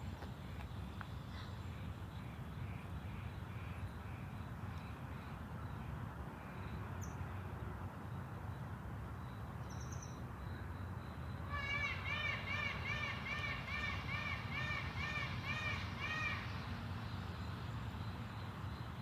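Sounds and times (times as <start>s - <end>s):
faint bird chirps: 9.2s - 11.3s.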